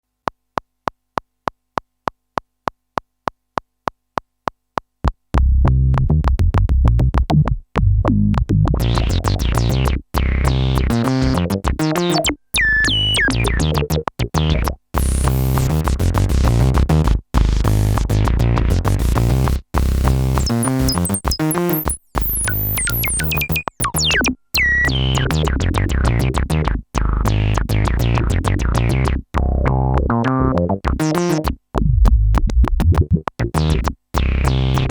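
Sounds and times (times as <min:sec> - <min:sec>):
drum machine beats: 0:00.2 - 0:34.9
synthesizer electronic pattern: 0:08.8 - 0:16.8, 0:17.6 - 0:26.2, 0:27.3 - 0:31.5.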